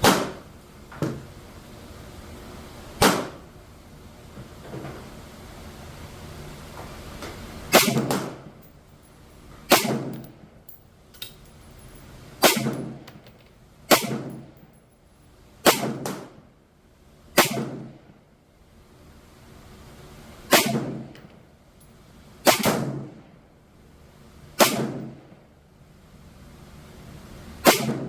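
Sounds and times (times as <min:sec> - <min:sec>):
rifle shots with echo: 0:00.0 - 0:00.4, 0:03.0 - 0:03.4, 0:09.7 - 0:10.2, 0:12.4 - 0:13.0, 0:13.9 - 0:14.4, 0:24.6 - 0:25.2, 0:27.6 - 0:28.0.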